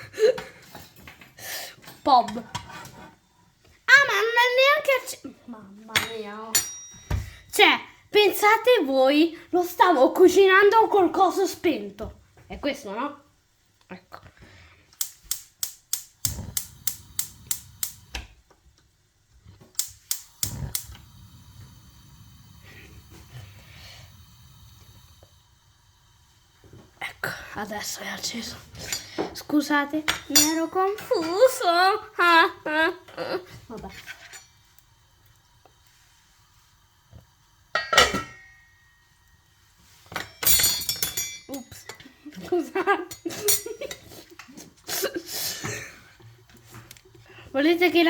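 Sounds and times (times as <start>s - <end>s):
metal cookware clattering: 5.9s - 7.5s, 30.1s - 31.5s, 37.7s - 38.9s, 40.1s - 44.1s
gas igniter clicking: 15.0s - 18.4s, 19.6s - 25.3s
gas flame rushing: 15.0s - 18.5s, 19.6s - 38.2s.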